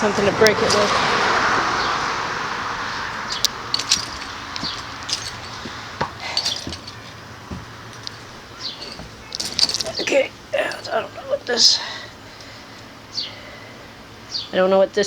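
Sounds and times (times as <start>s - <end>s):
passing road traffic: 0.0s - 15.0s
light clicks and rustles: 3.3s - 12.9s.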